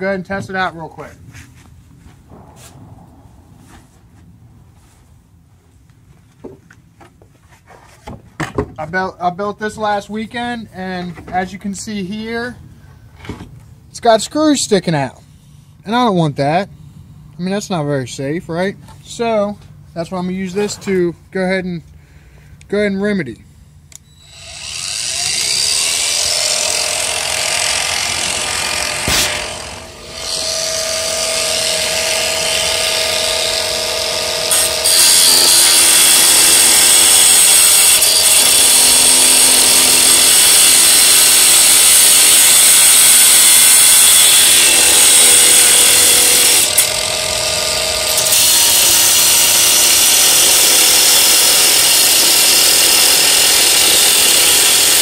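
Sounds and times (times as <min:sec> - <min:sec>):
angle grinder grinding screws: 0:24.1 - 0:55.0.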